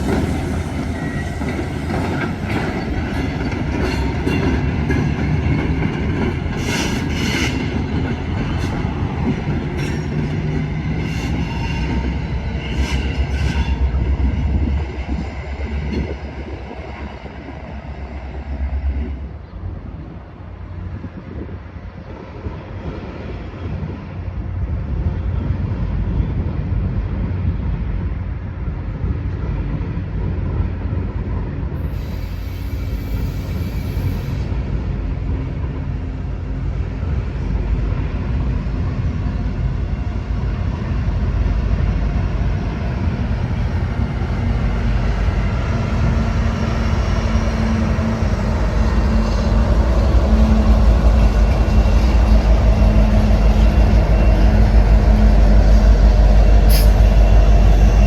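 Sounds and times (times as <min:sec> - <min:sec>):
freight train rumble: 0:00.0 - 0:58.0
train engine tone: 0:31.8 - 0:58.0.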